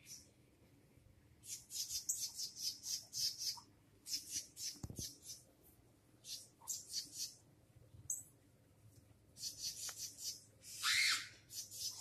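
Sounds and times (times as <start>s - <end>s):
bird chirping high-pitched: 1.4s - 5.4s, 6.2s - 7.4s, 9.4s - 12.0s.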